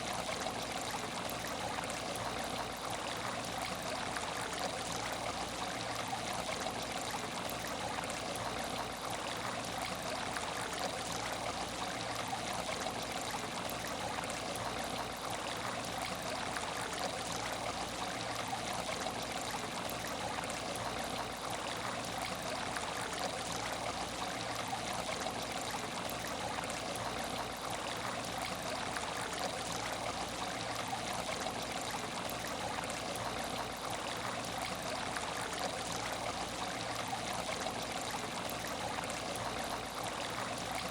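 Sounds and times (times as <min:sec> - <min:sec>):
faint steady hum: 0:00.0 - 0:40.9
water trickling in tank: 0:00.0 - 0:40.9.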